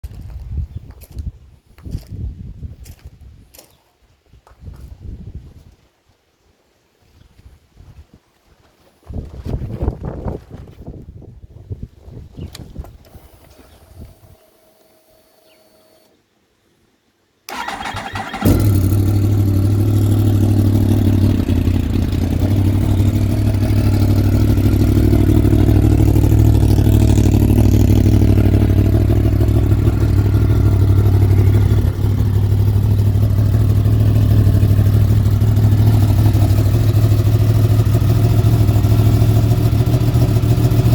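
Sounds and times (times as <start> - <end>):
motorcycle engine starting and idling: 17.5 - 40.9.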